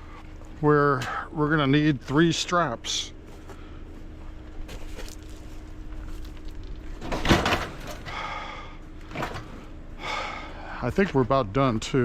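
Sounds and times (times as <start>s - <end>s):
faint steady hum: 0.0s - 12.0s
knocks and rattle of load: 6.8s - 8.1s.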